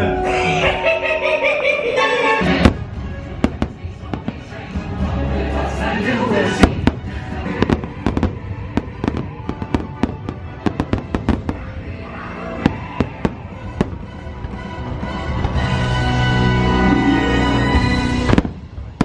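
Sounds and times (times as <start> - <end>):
music soundtrack: 0.0 - 19.0
fireworks bangs: 2.5 - 5.0, 6.5 - 16.0, 17.8 - 19.0.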